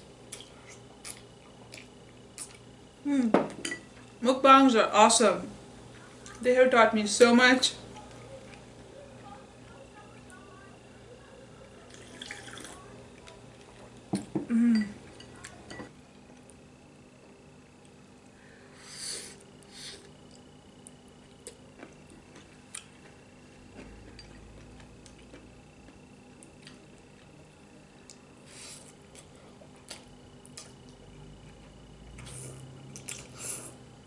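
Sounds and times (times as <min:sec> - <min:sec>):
slurping: 0:11.9 - 0:12.8.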